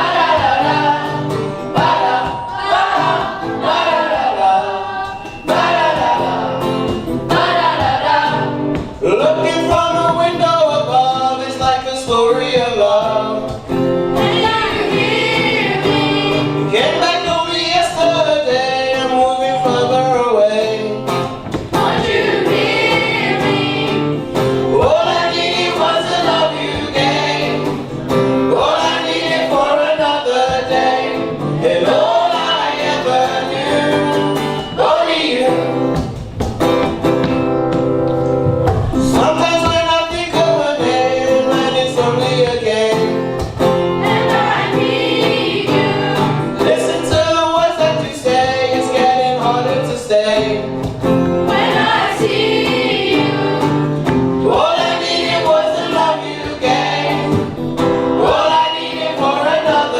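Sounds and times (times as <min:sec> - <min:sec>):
choir singing: 0:00.0 - 0:08.8, 0:14.1 - 0:17.3, 0:21.5 - 0:36.0, 0:43.9 - 0:49.5, 0:51.4 - 0:59.9.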